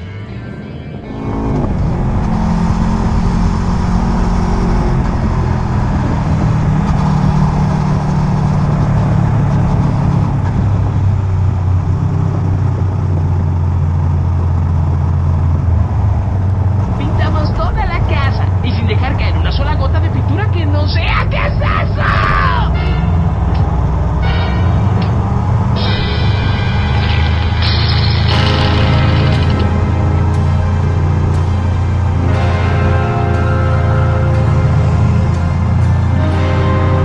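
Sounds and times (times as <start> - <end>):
quiet music: 0.0 - 5.6, 22.8 - 37.0
motorcycle engine running: 0.0 - 17.0, 25.1 - 37.0.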